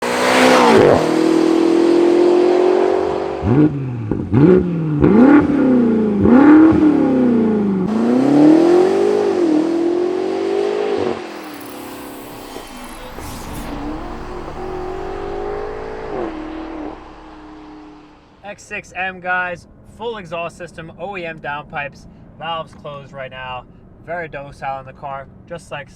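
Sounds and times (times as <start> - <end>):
car engine revving through exhaust: 0.0 - 18.4.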